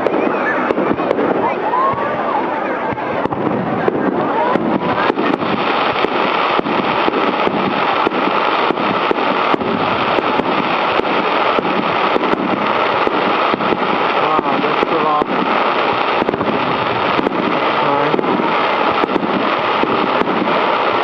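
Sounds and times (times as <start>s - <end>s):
fireworks sharp bangs: 0.0s - 21.0s
loud crackling rumble: 0.0s - 21.0s.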